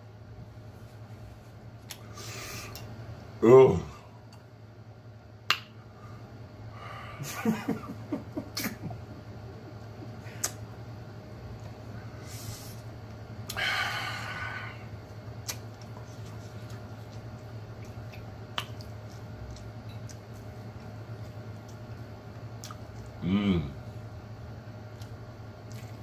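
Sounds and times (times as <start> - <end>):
man chewing with wet smacks: 1.8 - 2.1, 9.6 - 10.7, 15.0 - 23.2, 24.7 - 26.0
man moaning: 3.4 - 4.1, 23.2 - 23.8.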